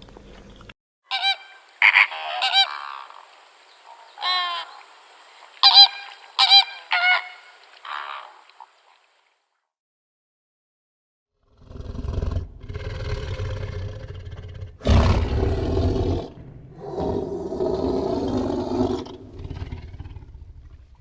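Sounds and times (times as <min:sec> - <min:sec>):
animal deep rasping roars: 0:11.5 - 0:21.0.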